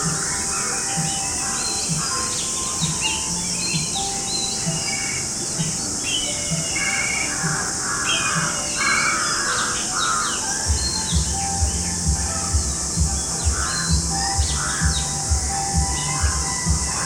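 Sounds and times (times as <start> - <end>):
birds chirping and calling: 0.0 - 17.0
steady high hiss: 0.0 - 17.0
background music with low beat: 10.6 - 17.0.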